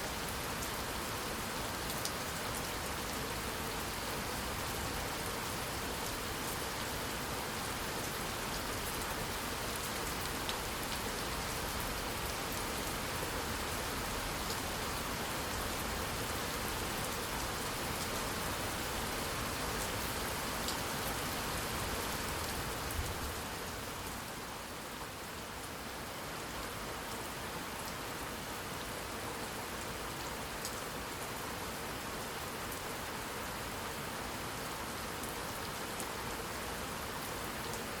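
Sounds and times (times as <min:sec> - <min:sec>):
steady rain hiss: 0:00.0 - 0:38.0.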